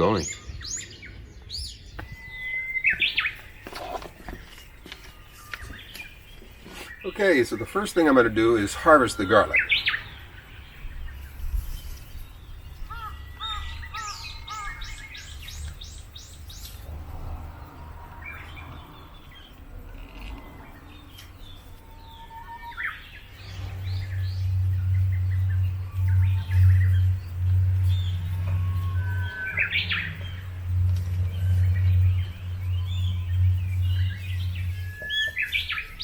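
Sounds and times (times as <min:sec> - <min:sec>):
small songbirds chirping: 0:00.0 - 0:36.0
loud low rumble: 0:14.8 - 0:20.3, 0:23.0 - 0:36.0.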